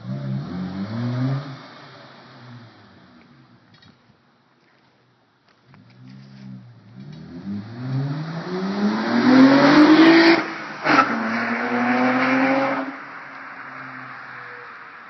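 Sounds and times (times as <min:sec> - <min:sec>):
car engine accelerating hard: 0:00.0 - 0:03.2, 0:06.6 - 0:14.9.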